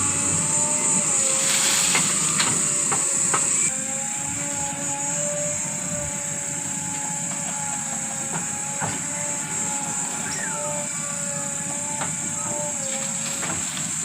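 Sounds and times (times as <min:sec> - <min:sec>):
heavy diesel machinery running: 0:00.0 - 0:14.0
high hiss: 0:00.1 - 0:03.7.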